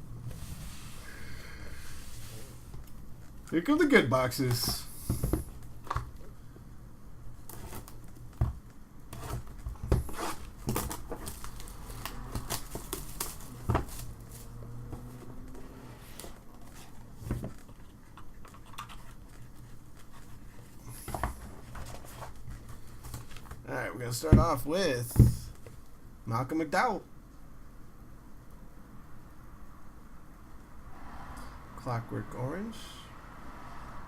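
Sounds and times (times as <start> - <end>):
wrapper crinkling and tearing: 10.1 - 14.6.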